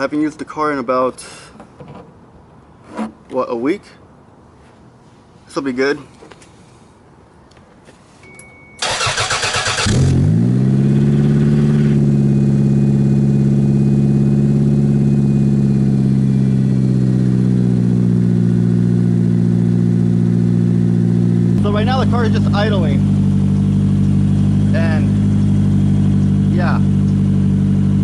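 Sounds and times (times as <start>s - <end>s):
starter motor cranking: 8.8s - 10.2s.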